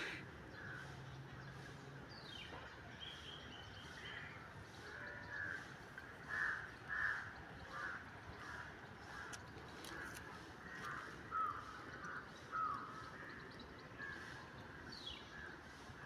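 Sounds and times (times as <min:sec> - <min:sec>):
birds calling: 0:00.0 - 0:00.7.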